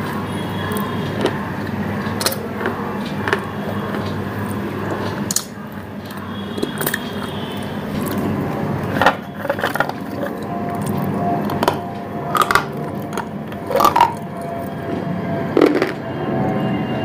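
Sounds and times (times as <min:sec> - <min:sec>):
chewing crunchy food: 0:00.0 - 0:15.0, 0:15.6 - 0:16.0.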